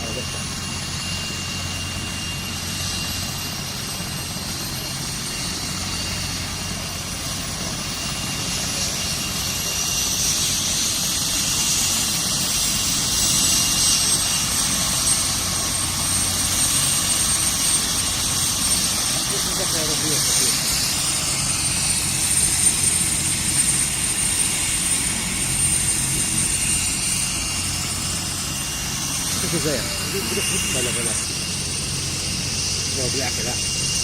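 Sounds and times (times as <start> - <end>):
helicopter turbine and rotor: 0.0 - 34.0
high whine rising in pitch: 19.4 - 34.0.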